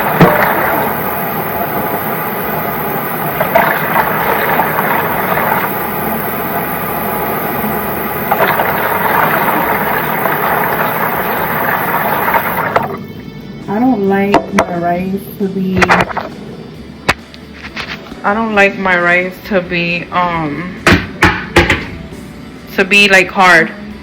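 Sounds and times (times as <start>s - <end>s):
tap running into a container: 0.0s - 13.1s.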